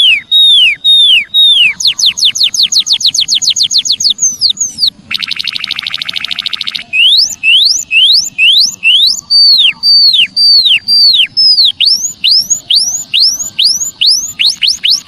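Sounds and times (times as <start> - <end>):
songbird singing whistles: 0.0 - 15.0.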